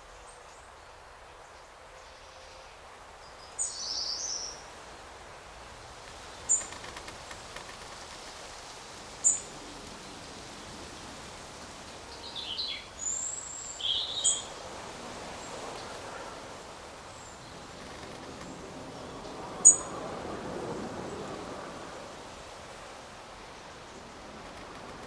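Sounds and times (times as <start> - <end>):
forest birds chirping: 0.0 - 5.0, 5.6 - 6.8, 12.1 - 14.6, 17.1 - 19.9
forest ambience hiss: 0.0 - 25.0.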